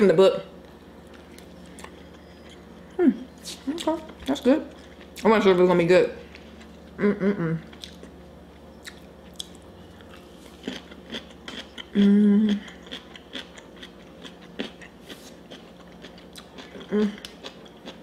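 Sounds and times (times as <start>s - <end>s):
person humming mmm: 3.0s - 3.8s, 7.0s - 7.8s, 11.9s - 12.8s, 16.8s - 17.3s.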